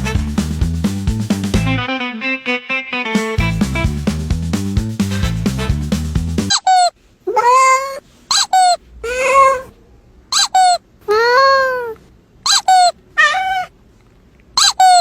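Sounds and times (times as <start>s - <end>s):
cat chirping: 6.5s - 9.7s, 10.3s - 13.7s, 14.6s - 15.0s
cat meowing: 6.5s - 9.8s, 10.4s - 13.7s.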